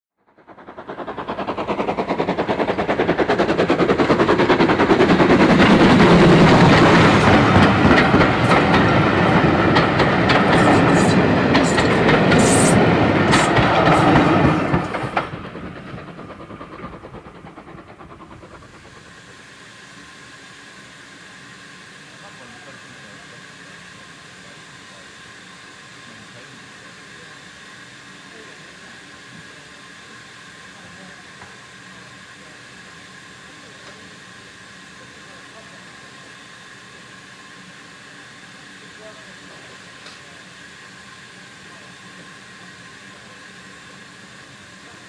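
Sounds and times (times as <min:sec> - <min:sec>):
train wheels clattering over rail joints: 0:00.6 - 0:18.9.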